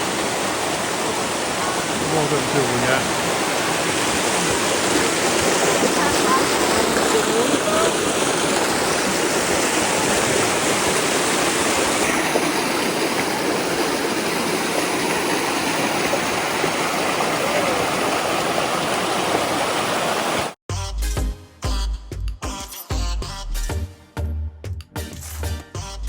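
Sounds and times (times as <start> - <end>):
creek water rushing: 0.0 - 20.6.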